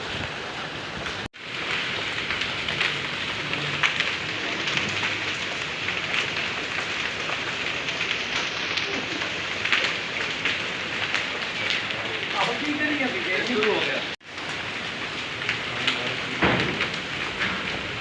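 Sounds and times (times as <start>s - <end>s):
rain and hail rushing: 0.0s - 18.0s
hailstones ticking on hard surfaces: 1.3s - 18.0s.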